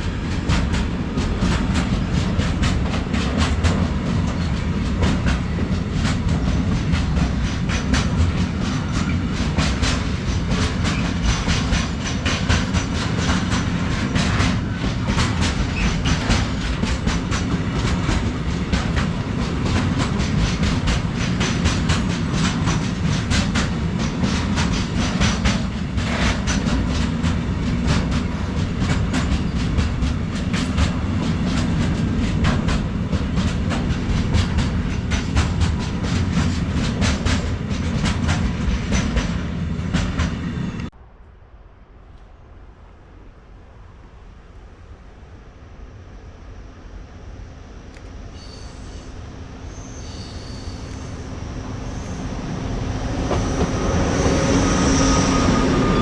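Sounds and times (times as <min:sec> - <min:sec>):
wheels clicking over rail joints: 0:00.0 - 0:40.9
freight train wagons rumbling: 0:00.0 - 0:41.1, 0:48.0 - 0:56.0.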